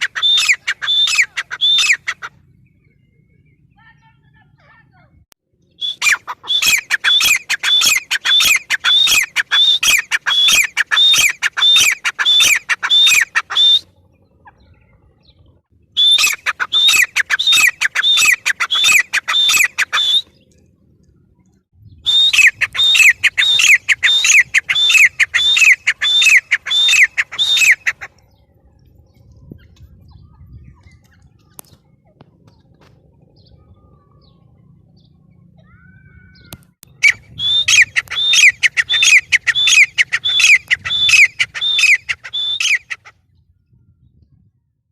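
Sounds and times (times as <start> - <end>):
francolin shrill calling: 0.0 - 2.3, 5.8 - 14.7, 16.0 - 20.4, 22.0 - 28.1, 35.6 - 43.1.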